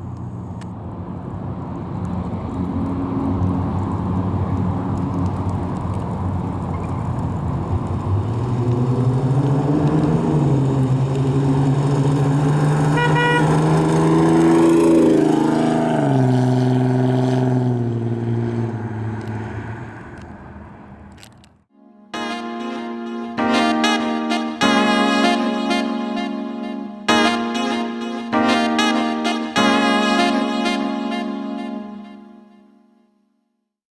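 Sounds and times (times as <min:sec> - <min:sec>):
car engine accelerating: 0:00.0 - 0:21.6
short high tone: 0:21.8 - 0:32.9.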